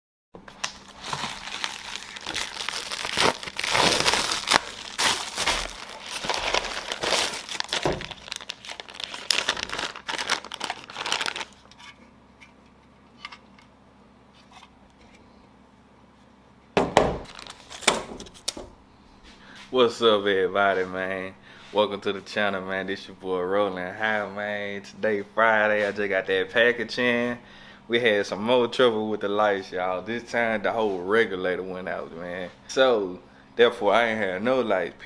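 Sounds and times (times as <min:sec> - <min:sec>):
packaging crinkling and tearing: 0:00.5 - 0:11.8, 0:17.2 - 0:18.6.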